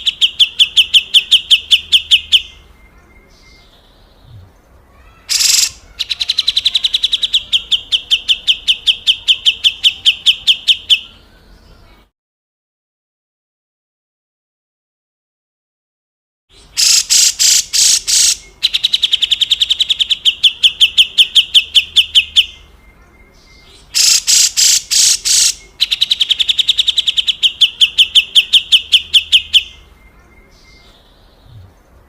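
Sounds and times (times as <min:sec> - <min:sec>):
bulbul harsh call: 0:04.2 - 0:11.3, 0:16.5 - 0:22.0, 0:23.7 - 0:29.9.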